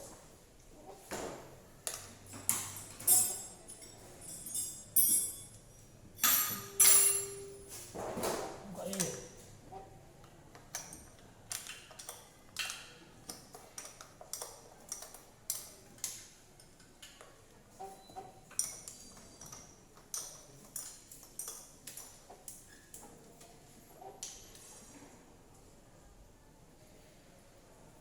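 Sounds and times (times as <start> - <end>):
metallic clinks of hand tools: 1.9 - 7.6
high metallic ping: 6.2 - 7.6.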